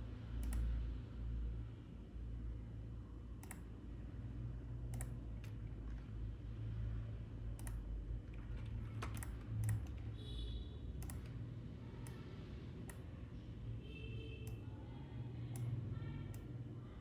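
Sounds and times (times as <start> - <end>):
computer mouse clicks: 0.4 - 0.7, 3.4 - 3.7, 4.9 - 5.6, 7.5 - 7.9, 8.6 - 10.0, 11.0 - 11.4, 15.5 - 16.5
keyboard clicks: 0.4 - 0.7, 3.4 - 3.7, 4.9 - 5.6, 7.5 - 10.0, 11.0 - 11.4.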